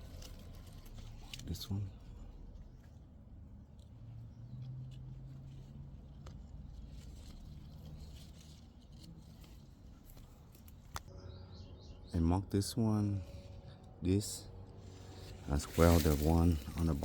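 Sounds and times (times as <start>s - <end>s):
hands rustling blossoms: 0.0s - 11.2s, 13.0s - 17.0s
low steady hum: 0.0s - 17.0s.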